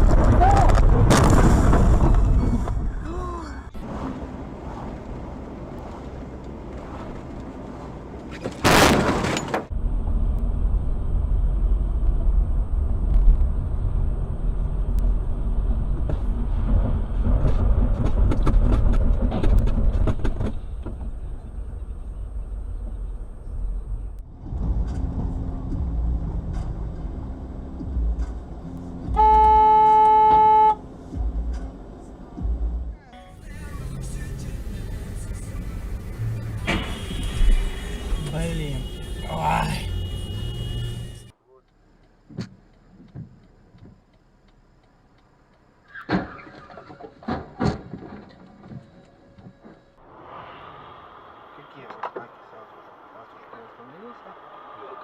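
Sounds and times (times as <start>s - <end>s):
car road rumble: 0.0s - 55.0s
car horn blast: 29.1s - 30.8s, 36.6s - 41.4s.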